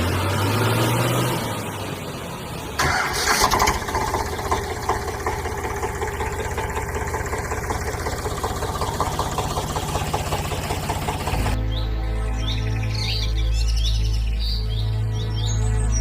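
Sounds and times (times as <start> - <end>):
vehicle engine starting and idling: 0.0 - 11.6.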